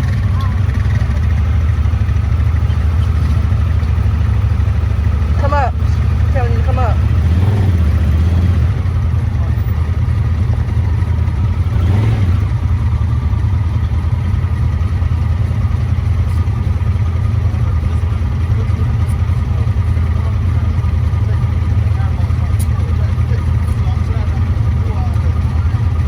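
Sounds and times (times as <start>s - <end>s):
atv engine droning: 0.0s - 26.0s.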